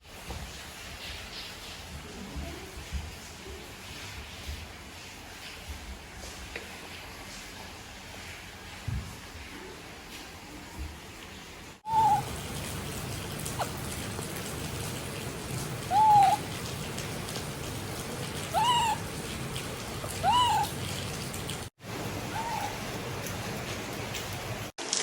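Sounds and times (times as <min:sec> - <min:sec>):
steady rain: 0:00.0 - 0:25.0
baby monkey calls: 0:11.9 - 0:12.4, 0:15.8 - 0:16.5, 0:18.4 - 0:19.0, 0:20.1 - 0:20.9, 0:22.3 - 0:22.8.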